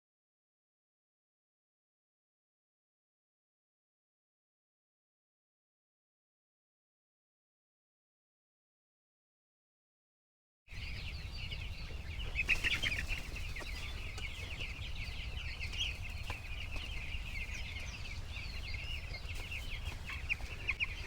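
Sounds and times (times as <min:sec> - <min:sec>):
chicks peeping: 0:10.7 - 0:21.0.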